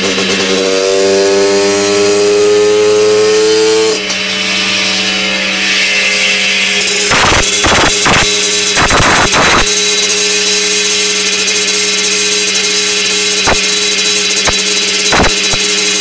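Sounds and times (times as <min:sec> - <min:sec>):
two-stroke engine revving high: 0:00.0 - 0:16.0.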